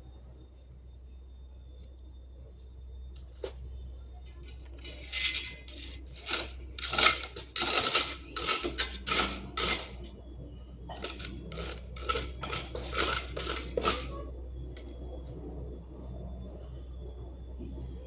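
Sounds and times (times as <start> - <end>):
hand tool scraping with metallic clatter: 4.3 - 10.2, 10.9 - 14.9.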